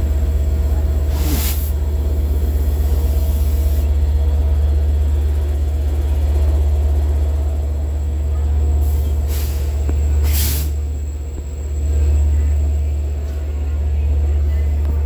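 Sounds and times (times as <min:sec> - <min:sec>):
train low rumble: 0:00.0 - 0:15.0
short hiss: 0:01.1 - 0:01.7.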